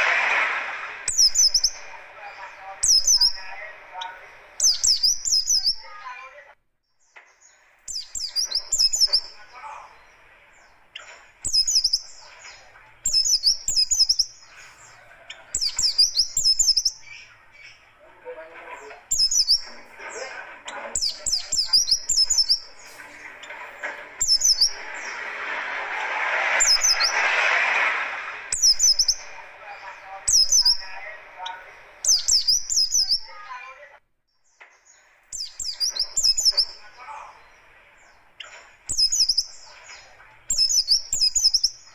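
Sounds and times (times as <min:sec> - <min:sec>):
low rushing noise: 0:00.0 - 0:04.7, 0:22.1 - 0:32.2
bird singing high chirps: 0:01.0 - 0:06.1, 0:06.8 - 0:18.0, 0:19.0 - 0:25.4, 0:26.6 - 0:27.3, 0:28.5 - 0:33.6, 0:34.3 - 0:41.9.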